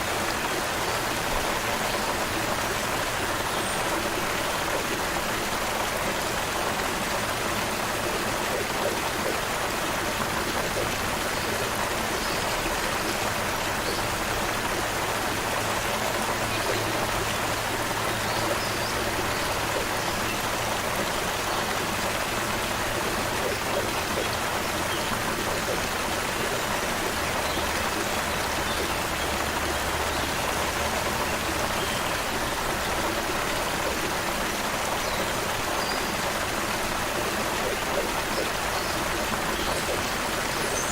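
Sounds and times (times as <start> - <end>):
creek water babbling: 0.0 - 40.9.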